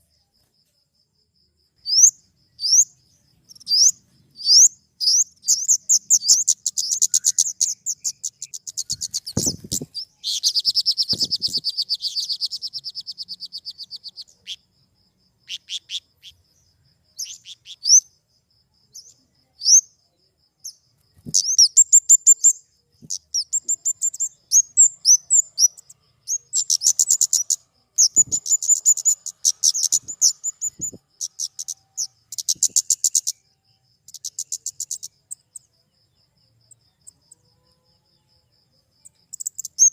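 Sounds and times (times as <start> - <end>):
bird high-pitched trills: 1.9 - 14.4, 21.3 - 33.4.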